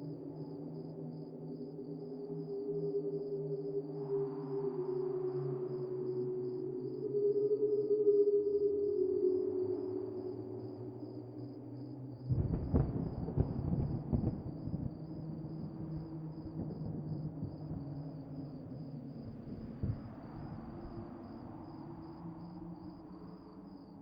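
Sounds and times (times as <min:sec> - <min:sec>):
deep rumble with crackling: 0:12.3 - 0:20.7.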